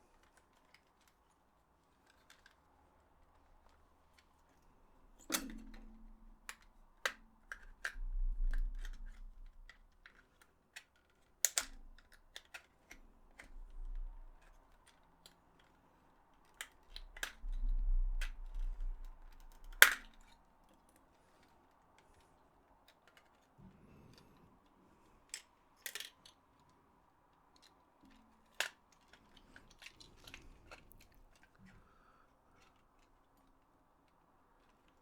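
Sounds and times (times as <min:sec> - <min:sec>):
small plastic clicks: 0:00.1 - 0:35.0
sharp plastic snaps: 0:05.2 - 0:15.8, 0:16.4 - 0:23.5.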